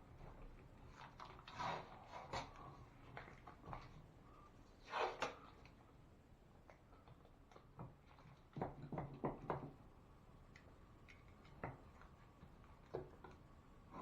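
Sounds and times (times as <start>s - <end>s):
faint clicks and knocks: 10.5s - 14.0s.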